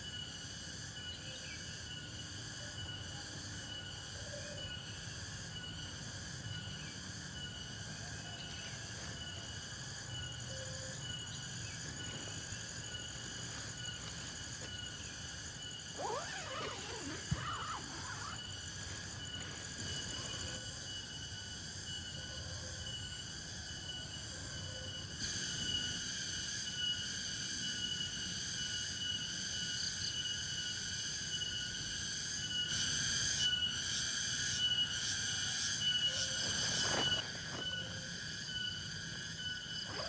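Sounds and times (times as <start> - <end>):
insects buzzing: 0.0 - 40.0.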